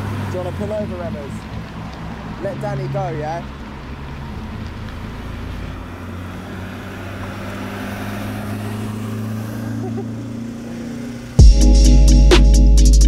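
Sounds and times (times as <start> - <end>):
electronic music with heavy bass: 11.4 - 13.0.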